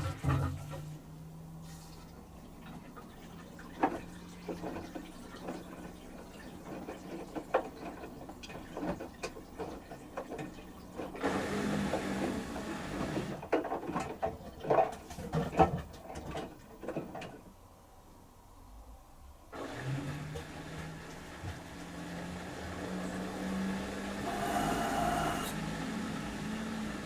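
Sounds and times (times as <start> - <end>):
motor hum: 21.1 - 27.0.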